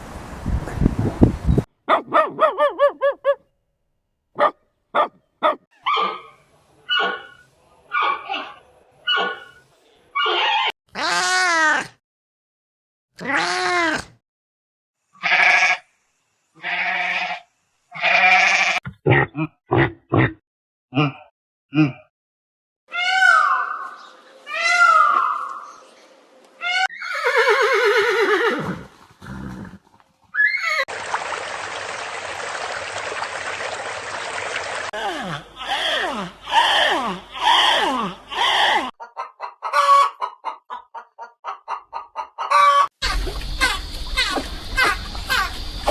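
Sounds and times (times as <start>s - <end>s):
horse whinnying: 26.8s - 30.9s.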